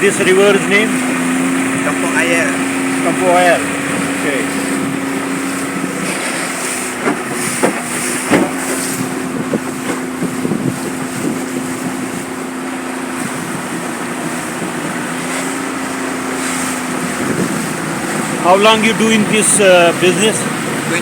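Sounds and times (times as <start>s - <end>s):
boat motor humming: 0.0s - 21.0s
water noise: 0.0s - 21.0s
wind on microphone: 0.0s - 21.0s
sharp knocks: 7.0s - 8.8s.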